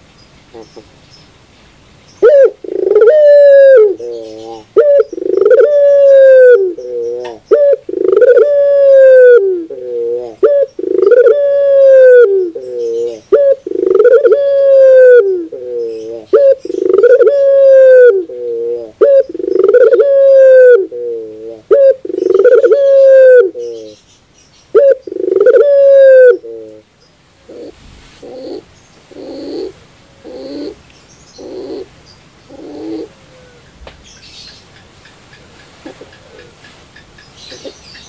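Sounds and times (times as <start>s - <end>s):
dove cooing loudly: 2.2s - 24.0s, 24.7s - 30.8s, 31.4s - 31.9s, 32.5s - 33.6s.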